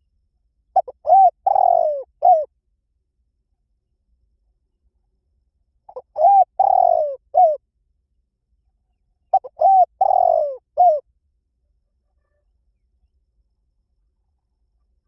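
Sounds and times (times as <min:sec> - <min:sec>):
dove cooing: 0:00.8 - 0:02.5, 0:05.9 - 0:07.6, 0:09.3 - 0:11.0.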